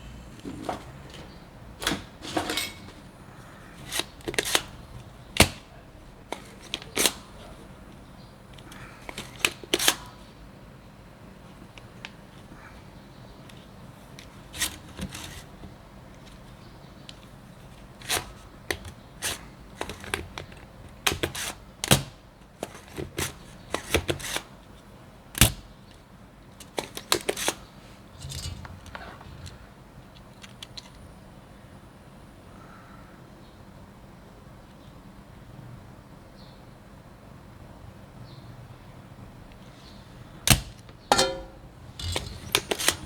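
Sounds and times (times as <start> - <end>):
small tools clicking and tapping: 40.5 - 43.0.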